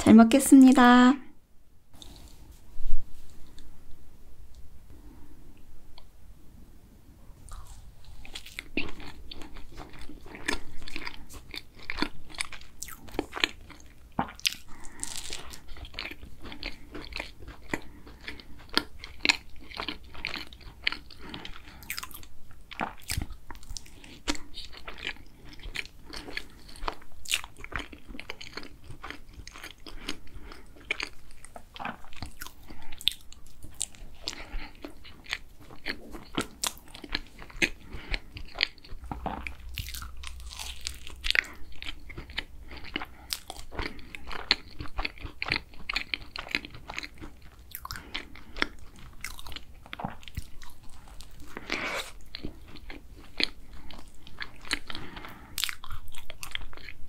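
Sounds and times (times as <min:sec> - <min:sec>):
pastry crunching when chewed: 0:07.4 - 0:57.0
soft mouth sounds: 0:47.7 - 0:56.9.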